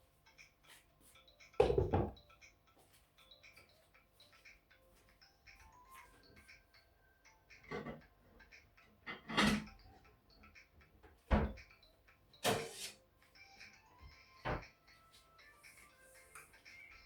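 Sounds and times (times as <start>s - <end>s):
kitchen knocks and clatters: 1.6s - 2.2s, 9.0s - 9.7s, 11.3s - 11.6s, 12.4s - 13.0s, 14.4s - 14.7s.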